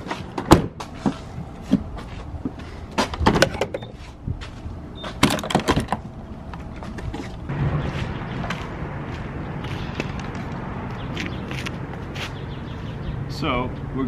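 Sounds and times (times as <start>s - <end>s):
low rumble: 6.0s - 11.1s.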